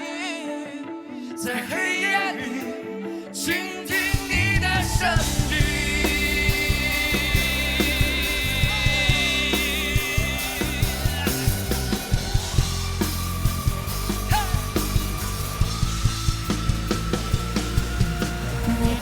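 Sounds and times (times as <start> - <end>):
person singing: 0.0 - 12.6
pop-rock music: 0.0 - 19.0.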